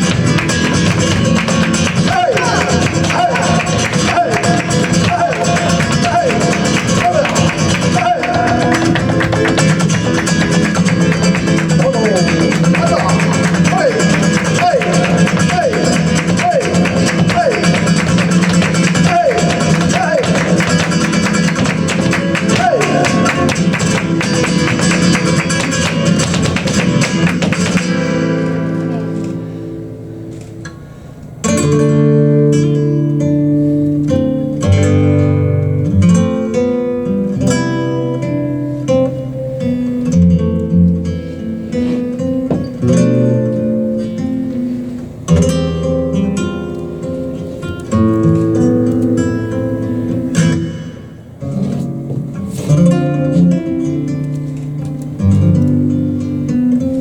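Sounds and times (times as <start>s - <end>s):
dancer's footwork strikes: 0.0s - 28.4s, 42.4s - 42.8s
flamenco guitar: 0.0s - 57.0s.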